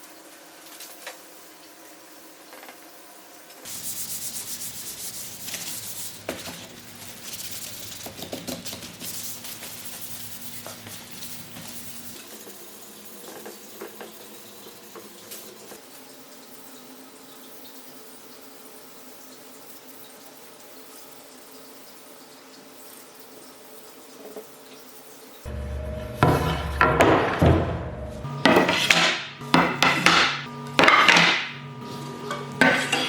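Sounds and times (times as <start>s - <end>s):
power sander on wood: 25.5s - 33.0s.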